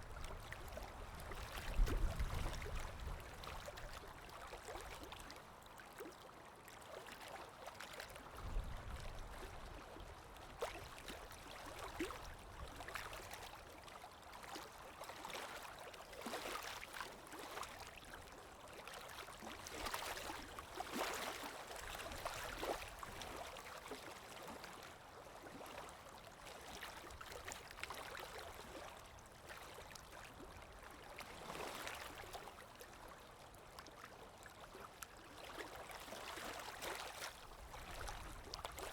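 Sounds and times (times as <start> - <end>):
small waves washing: 19.0 - 24.8.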